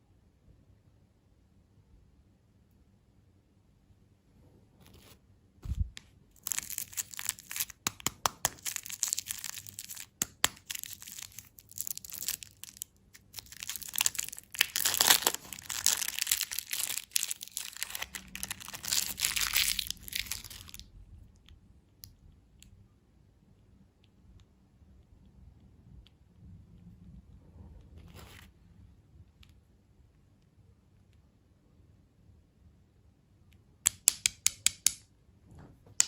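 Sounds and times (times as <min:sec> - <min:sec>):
wrapper tearing and crinkling: 0:06.4 - 0:20.8.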